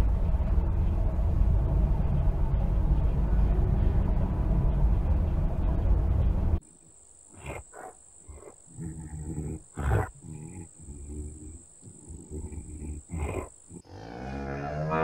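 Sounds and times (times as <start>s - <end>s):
loud steady rumble: 0.0s - 6.6s
cow calling: 7.4s - 15.0s.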